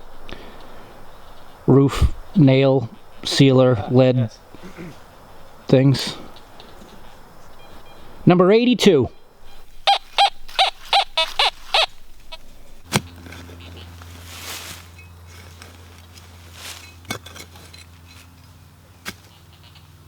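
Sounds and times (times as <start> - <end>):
low steady hum: 0.0 - 20.0
metal detector beeps: 7.4 - 8.3, 8.9 - 12.5.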